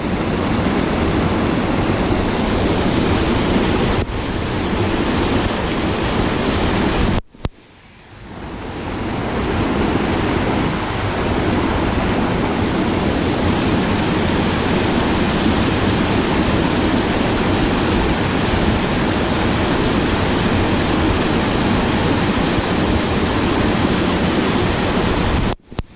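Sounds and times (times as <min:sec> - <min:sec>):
fast-flowing water rushing: 0:00.0 - 0:07.5, 0:08.2 - 0:25.9.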